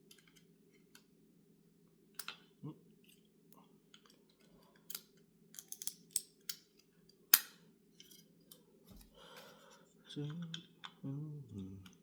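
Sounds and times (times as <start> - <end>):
small metal parts clinking: 5.6 - 6.6
faint low hum: 7.9 - 12.0.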